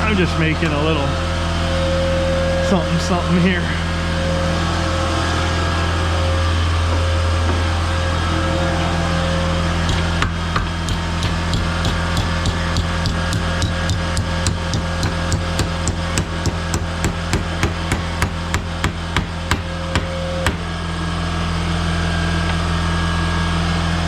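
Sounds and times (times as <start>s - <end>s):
low hum: 0.0s - 24.0s
hammer striking metal: 9.9s - 20.7s.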